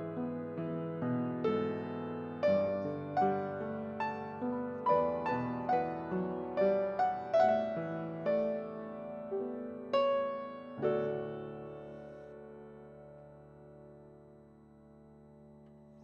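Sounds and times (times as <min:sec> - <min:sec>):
slow gentle piano piece: 0:00.0 - 0:16.0.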